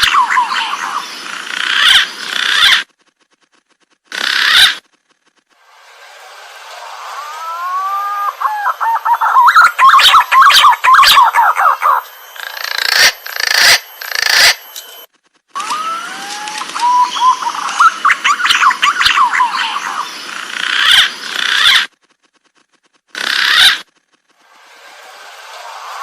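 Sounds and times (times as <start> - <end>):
pigeons calling: 7.1 - 14.7, 15.6 - 21.9, 23.1 - 23.9.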